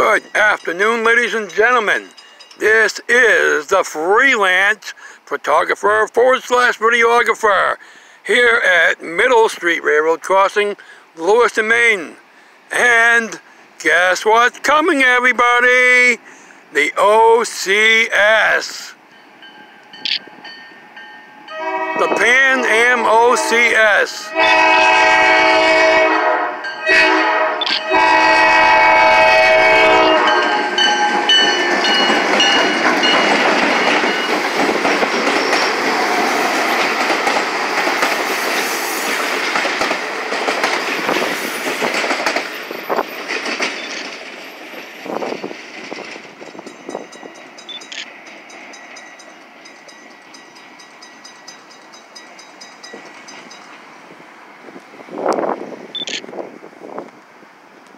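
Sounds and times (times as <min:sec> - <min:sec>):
locomotive air horn: 0:21.5 - 0:31.4
train wheels clattering over rails: 0:30.8 - 0:53.8.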